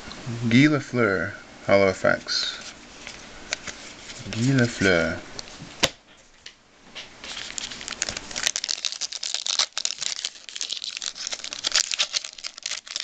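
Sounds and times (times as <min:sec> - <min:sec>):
wrapper crinkling and tearing: 0:07.2 - 0:13.0.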